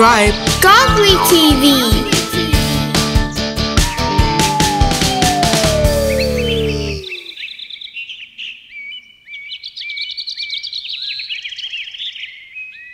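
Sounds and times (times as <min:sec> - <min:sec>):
background music: 0:00.0 - 0:07.2
birds chirping: 0:00.0 - 0:12.9
long falling tone: 0:00.6 - 0:07.3.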